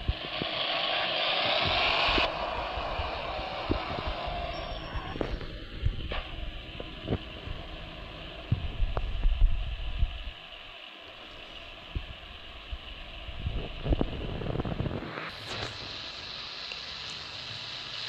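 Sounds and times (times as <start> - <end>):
car road rumble: 0.0 - 16.1
wind buffeting on microphone: 1.6 - 7.8, 11.9 - 15.7.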